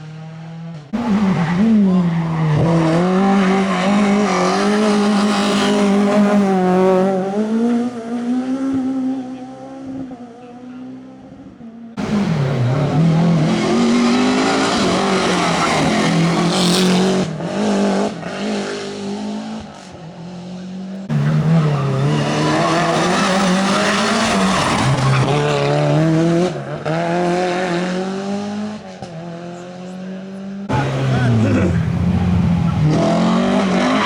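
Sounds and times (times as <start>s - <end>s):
rally car engines revving: 0.0s - 34.0s
tyres skidding: 0.9s - 8.0s, 12.0s - 19.4s, 21.0s - 27.5s, 30.7s - 34.0s.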